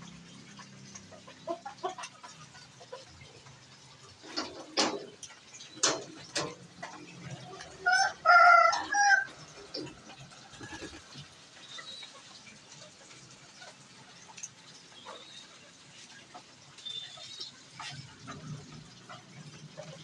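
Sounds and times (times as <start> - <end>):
rooster crowing: 7.9 - 9.3.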